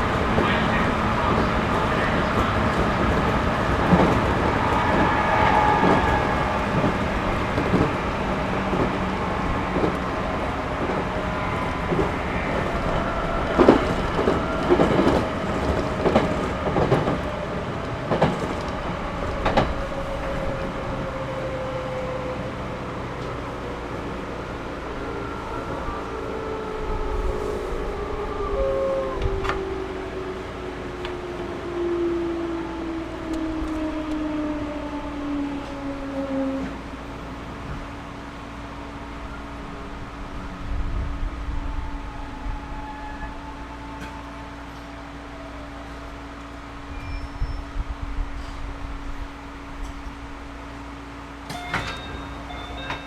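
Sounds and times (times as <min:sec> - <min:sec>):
wheels clacking over rail joints: 0:00.0 - 0:21.2
train interior running noise: 0:00.0 - 0:53.0.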